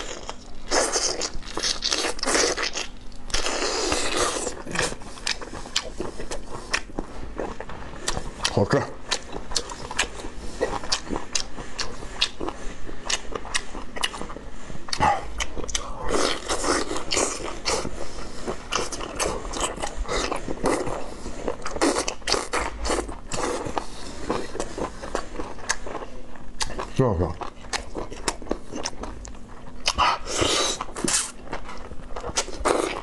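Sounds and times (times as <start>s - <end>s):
wet chewing and lip smacking: 0.1s - 17.9s, 18.5s - 33.0s.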